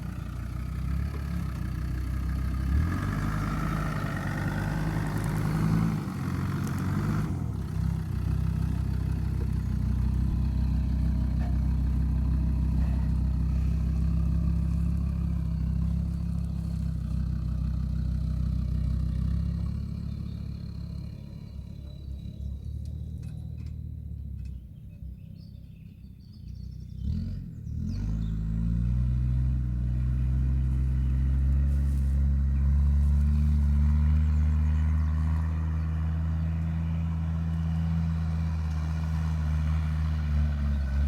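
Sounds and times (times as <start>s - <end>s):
diesel engine low drone: 0.0s - 41.0s.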